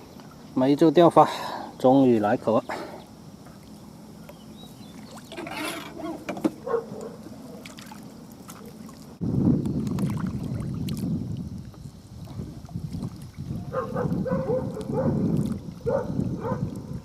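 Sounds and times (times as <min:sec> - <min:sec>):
water lapping and splashing: 0:04.8 - 0:17.0
wind on microphone: 0:09.1 - 0:17.0.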